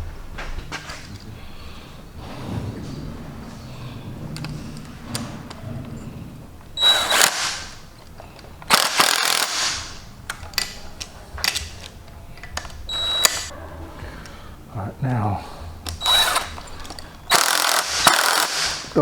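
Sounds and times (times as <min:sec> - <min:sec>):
power tool bursts: 0:06.8 - 0:07.8, 0:08.7 - 0:10.0, 0:16.0 - 0:16.6, 0:17.3 - 0:19.0
hand tools clicking: 0:06.8 - 0:13.5, 0:15.8 - 0:19.0.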